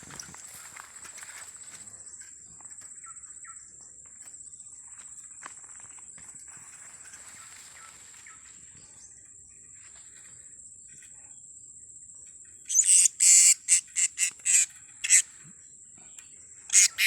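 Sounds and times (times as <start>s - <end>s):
parrots giving shrill calls: 12.7s - 15.2s, 16.7s - 17.0s.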